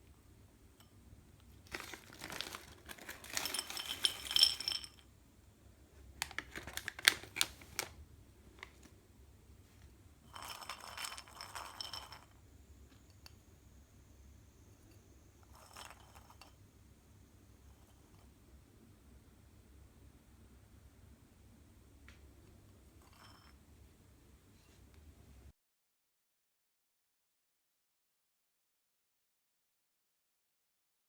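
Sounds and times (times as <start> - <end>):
plastic snack wrapper crinkling: 1.6 - 4.8, 6.2 - 8.9.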